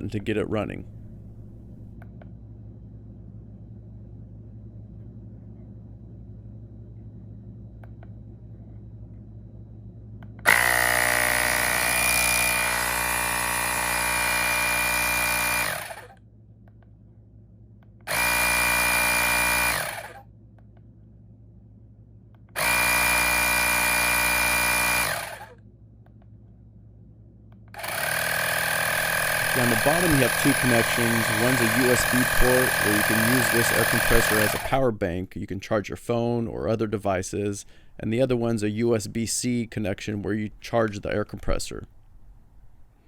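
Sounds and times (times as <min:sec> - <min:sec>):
tire inflator compressor whining: 0:10.4 - 0:16.2, 0:18.1 - 0:20.2, 0:22.6 - 0:25.6, 0:27.7 - 0:34.9.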